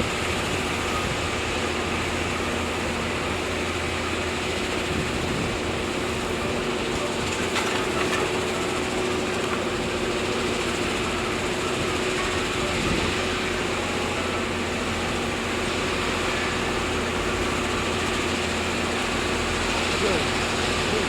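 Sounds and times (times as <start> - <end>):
heavy machinery diesel engine: 0.0 - 21.0.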